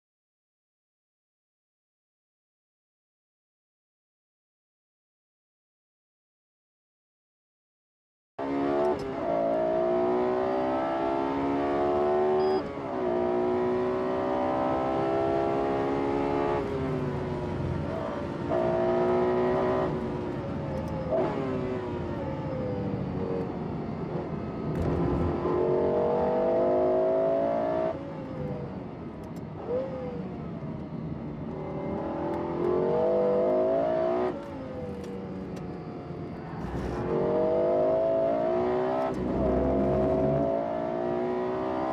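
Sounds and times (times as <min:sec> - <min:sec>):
car engine revving hard: 0:36.6 - 0:41.9.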